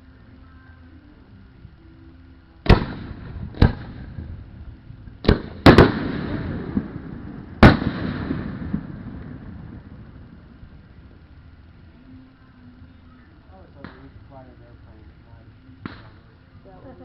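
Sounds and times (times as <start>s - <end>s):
fireworks bursting with rumble: 2.6s - 12.1s.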